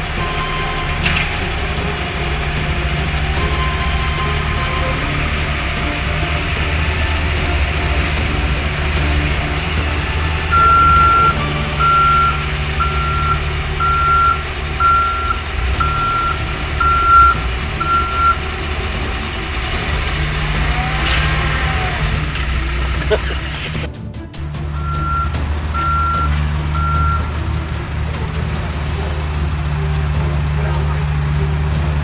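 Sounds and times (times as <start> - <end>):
truck engine running: 0.0 - 32.0
reversing alarm beeps: 10.5 - 18.4, 24.7 - 27.4.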